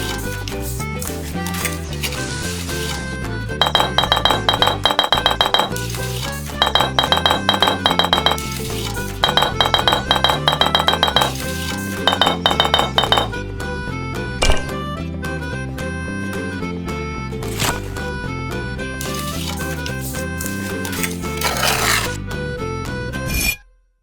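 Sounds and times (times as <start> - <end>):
rapid bright clinking: 3.6 - 13.4.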